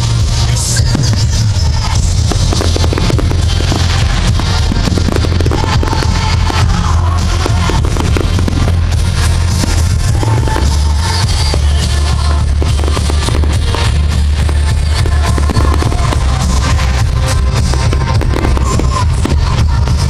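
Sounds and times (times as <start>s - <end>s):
firework bangs and crackles: 0.0s - 20.0s
loud music with heavy bass: 0.0s - 20.0s.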